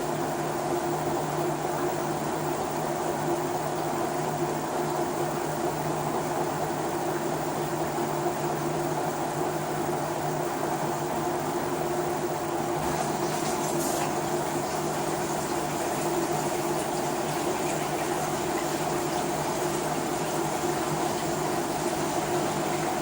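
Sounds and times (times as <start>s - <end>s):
washing machine running: 12.5s - 23.0s.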